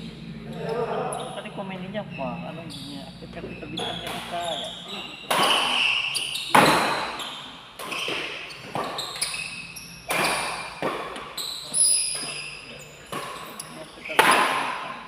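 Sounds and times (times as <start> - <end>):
shoes squeaking on court floor: 0.6 - 14.8
rackets hitting shuttlecock: 3.8 - 4.5, 5.2 - 11.4, 12.0 - 12.4, 13.1 - 15.0.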